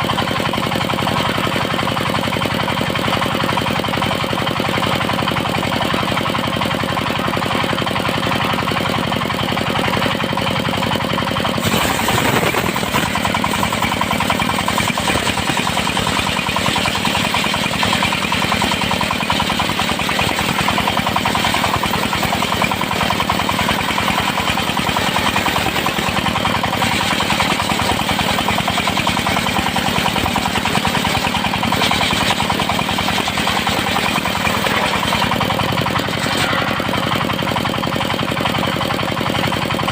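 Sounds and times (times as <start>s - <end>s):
sawmill engine beating: 0.0s - 39.9s
saw blade cutting wood: 11.6s - 31.1s, 33.2s - 37.2s.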